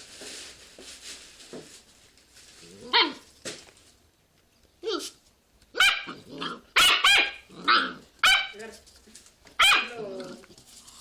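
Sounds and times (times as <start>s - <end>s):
dog barking: 5.8s - 6.2s, 6.8s - 8.6s, 9.6s - 10.0s
dog grumbling: 6.1s - 6.7s.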